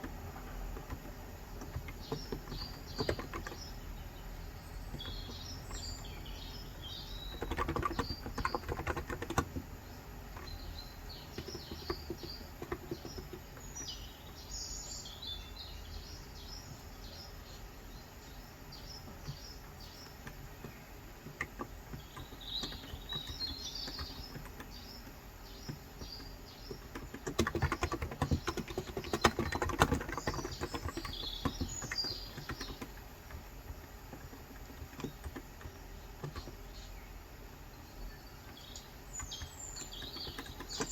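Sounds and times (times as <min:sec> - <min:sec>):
keyboard typing: 0:00.0 - 0:03.8, 0:04.9 - 0:09.8, 0:10.4 - 0:13.6, 0:20.1 - 0:36.7, 0:38.4 - 0:40.9
small birds chirping: 0:00.0 - 0:40.9.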